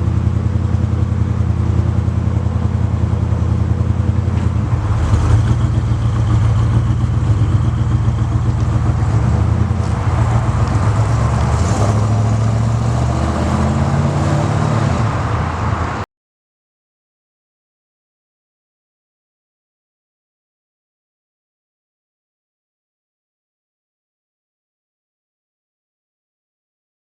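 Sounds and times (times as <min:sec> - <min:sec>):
pickup engine running: 0:00.0 - 0:16.0.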